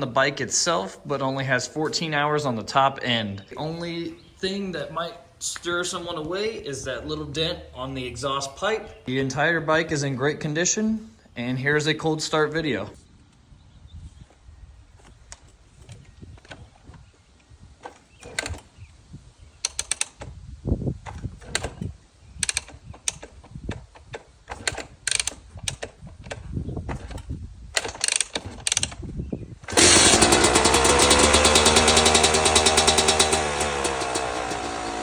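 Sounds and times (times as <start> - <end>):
mechanical clicks and knocks: 19.6 - 20.3, 21.0 - 29.1
dirt bike engine running: 29.6 - 35.0.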